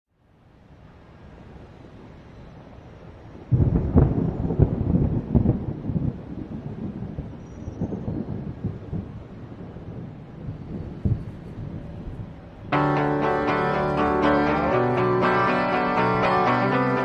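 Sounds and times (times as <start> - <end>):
thunderclap rumbling: 3.4 - 12.8.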